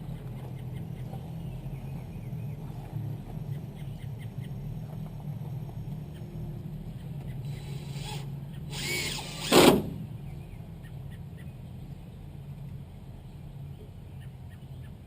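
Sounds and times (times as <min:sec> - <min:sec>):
steady low hum: 0:00.0 - 0:15.0
power drill running: 0:07.5 - 0:10.0.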